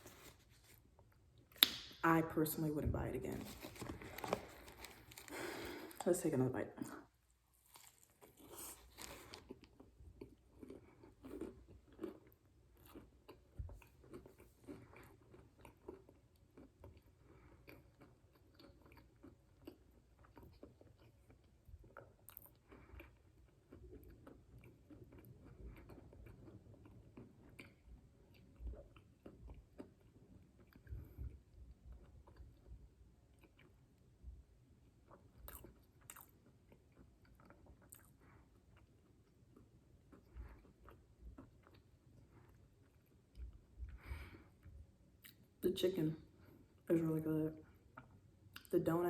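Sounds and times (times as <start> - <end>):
close-up chewing: 3.3 - 6.1, 7.2 - 45.6
biting into sandwich: 7.6 - 30.9.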